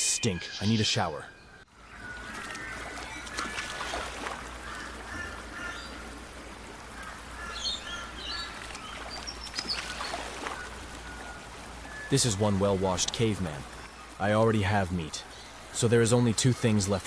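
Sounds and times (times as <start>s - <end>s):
birds chirping and whistling: 0.0s - 2.3s
outdoor background noise: 0.0s - 17.0s.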